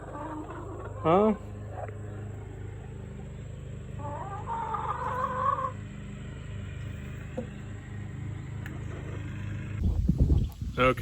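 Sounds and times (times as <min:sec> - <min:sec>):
steady low hum: 0:00.0 - 0:11.0
hen calling: 0:03.8 - 0:05.8.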